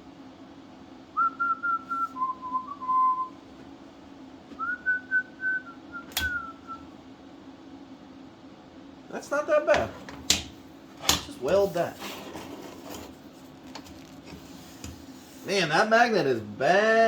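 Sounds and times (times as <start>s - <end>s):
person whistling a tune: 1.2s - 3.4s, 4.6s - 6.8s.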